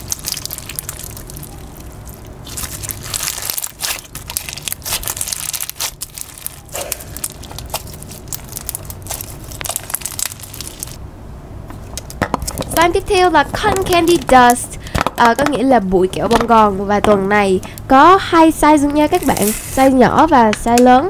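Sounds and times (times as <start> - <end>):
crunchy slime squeezed by hand: 0.0 - 11.0.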